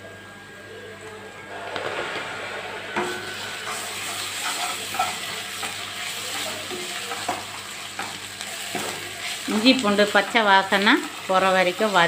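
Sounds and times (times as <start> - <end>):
metal ladle scraping pan: 1.5 - 9.4
food sizzling in oil: 1.5 - 12.0.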